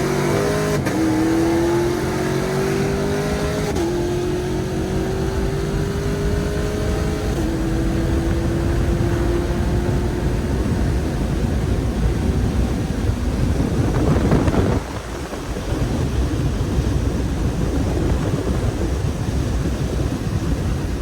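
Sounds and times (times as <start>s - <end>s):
car engine drone: 0.0s - 21.0s
road rumble: 0.0s - 21.0s.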